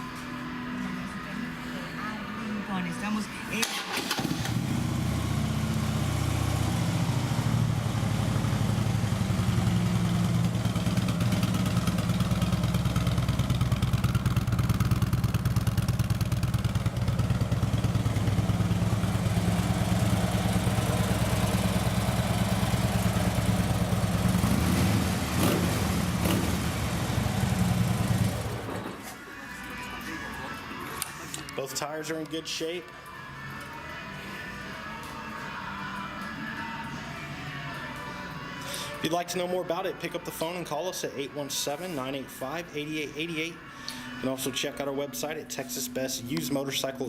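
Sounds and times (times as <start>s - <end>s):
motorcycle engine idling: 4.5s - 28.7s.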